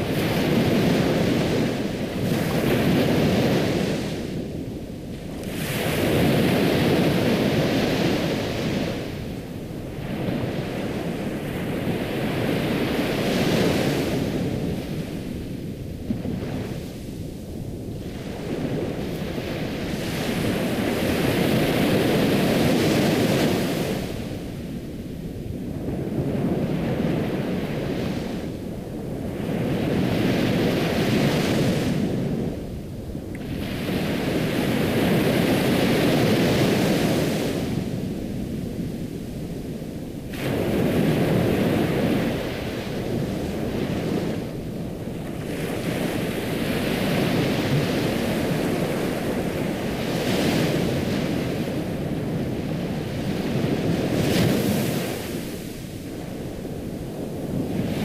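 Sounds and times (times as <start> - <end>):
ocean waves breaking on shore: 0.0 - 58.0.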